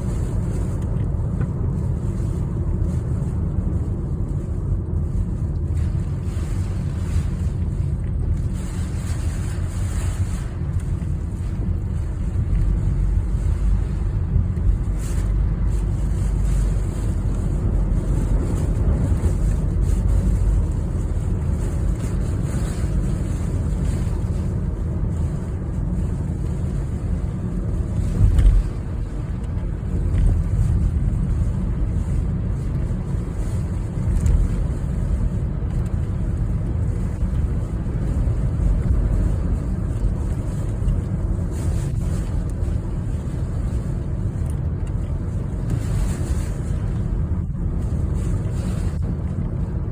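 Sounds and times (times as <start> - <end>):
storm wind and road noise: 0.0 - 49.9.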